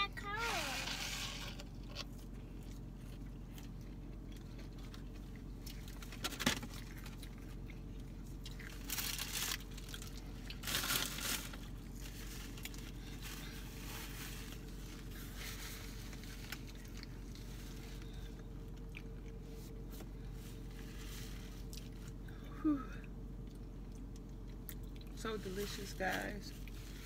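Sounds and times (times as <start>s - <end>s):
steady low hum: 0.0s - 27.0s
chewing french fries: 1.3s - 25.6s, 26.2s - 27.0s
paper packaging crinkling: 8.6s - 18.3s.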